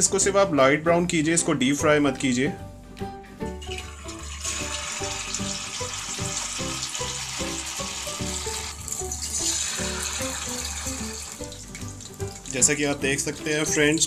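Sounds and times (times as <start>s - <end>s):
background music: 0.0s - 14.0s
food sizzling in hot oil: 3.5s - 13.0s.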